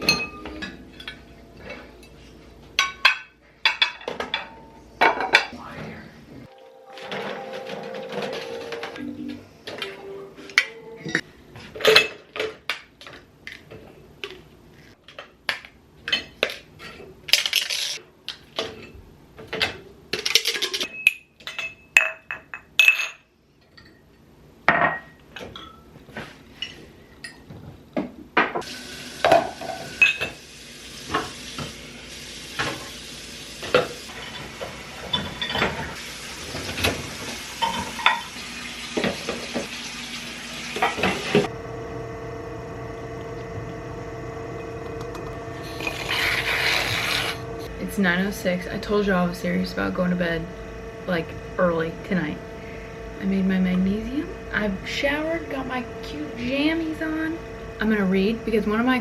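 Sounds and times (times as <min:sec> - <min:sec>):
utensils and dishes clinking: 0:00.0 - 0:05.6, 0:09.7 - 0:13.2, 0:16.0 - 0:18.0, 0:18.6 - 0:24.1, 0:29.2 - 0:30.4, 0:33.6 - 0:37.0, 0:37.6 - 0:38.4
frying sizzle: 0:28.6 - 0:41.5.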